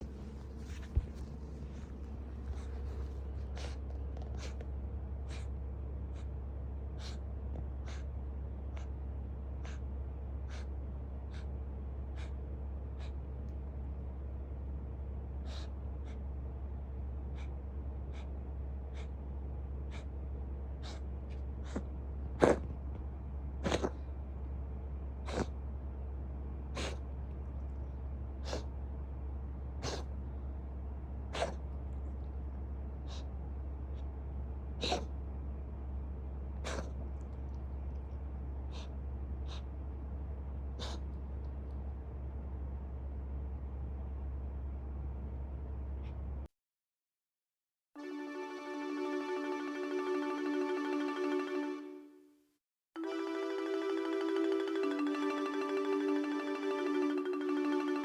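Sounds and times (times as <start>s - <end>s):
steady low hum: 0.0s - 43.8s.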